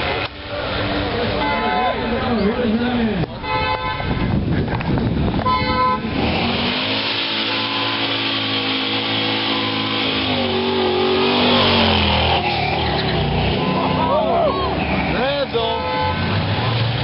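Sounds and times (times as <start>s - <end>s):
car engine revving: 5.0s - 17.0s.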